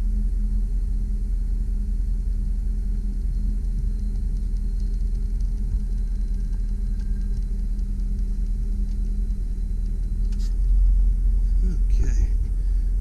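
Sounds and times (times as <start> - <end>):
faint high whine: 0.0 - 13.0
truck engine rumbling: 3.0 - 13.0.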